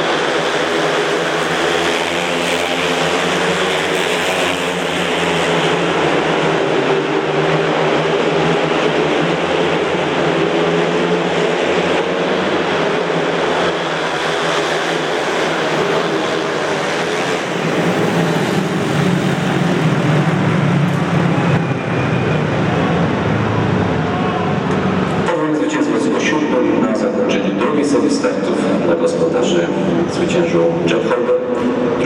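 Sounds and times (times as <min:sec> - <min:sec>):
motorcycles racing: 0:00.0 - 0:32.0.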